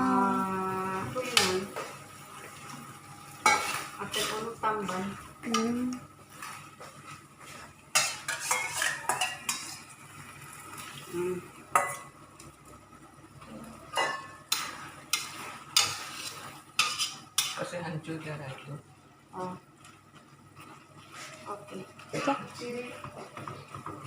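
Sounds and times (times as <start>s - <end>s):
metal spoon scraping a pan: 3.4s - 4.6s, 7.9s - 9.9s, 14.0s - 17.6s.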